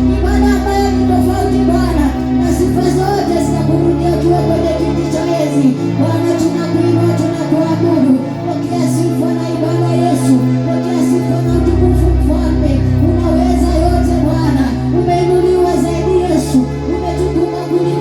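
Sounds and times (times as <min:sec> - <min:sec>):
sustained chord accompaniment: 0:00.0 - 0:18.0
voices singing worship music: 0:00.0 - 0:18.0.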